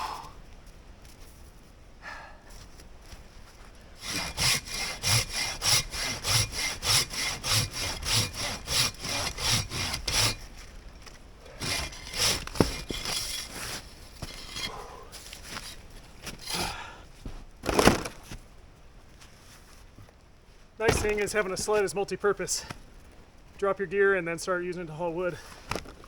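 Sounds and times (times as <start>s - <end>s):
hand saw cutting wood: 4.0s - 10.6s, 11.5s - 14.8s, 15.4s - 16.8s.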